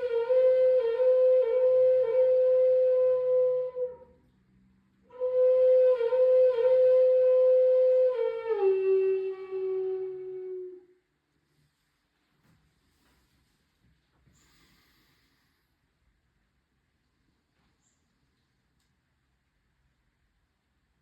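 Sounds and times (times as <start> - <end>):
flute playing long notes: 0.0 - 4.2, 5.1 - 11.0.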